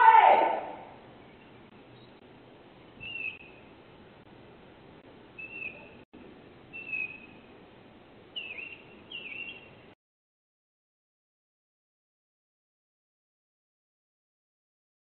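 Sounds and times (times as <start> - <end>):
bird chirping: 2.8 - 3.7, 5.4 - 6.0, 6.7 - 7.5, 8.3 - 9.8.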